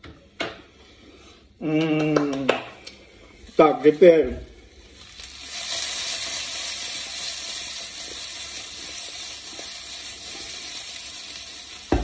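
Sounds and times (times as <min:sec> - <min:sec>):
sprouts sizzling in hot oil: 0:03.0 - 0:12.0.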